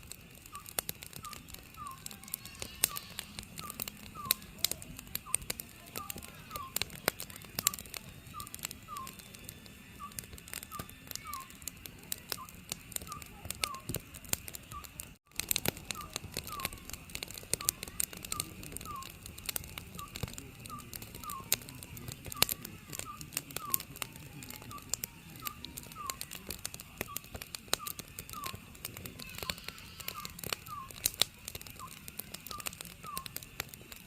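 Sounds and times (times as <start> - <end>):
wood fire crackling and popping: 0.0 - 34.0
owl calling: 0.5 - 5.4, 6.0 - 7.0, 10.0 - 11.7, 12.4 - 13.9, 15.9 - 16.9, 17.5 - 19.2, 22.4 - 26.3, 29.2 - 31.1, 31.8 - 33.4.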